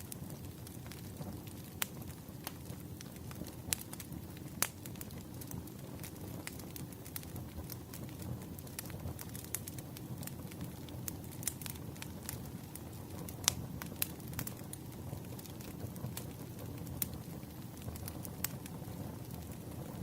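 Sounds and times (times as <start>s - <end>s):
firewood crackling and popping: 0.0s - 20.0s.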